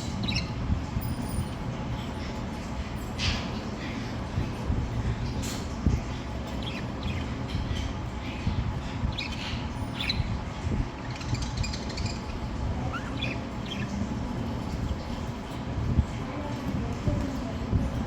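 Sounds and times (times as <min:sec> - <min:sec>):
steady low rumble: 0:00.0 - 0:18.0
budgerigars chirping: 0:00.1 - 0:00.6, 0:06.5 - 0:15.1.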